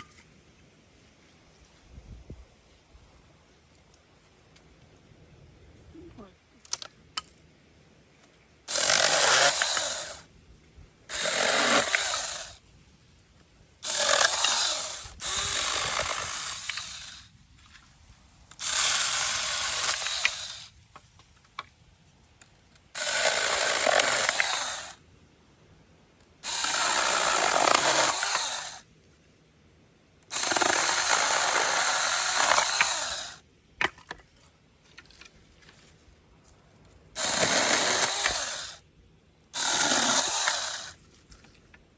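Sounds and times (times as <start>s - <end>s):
mini chainsaw cutting sticks: 8.7s - 10.3s, 11.1s - 12.6s, 13.8s - 17.3s, 18.5s - 20.7s, 23.0s - 25.0s, 26.4s - 28.8s, 30.2s - 33.4s, 37.2s - 38.8s, 39.6s - 41.0s.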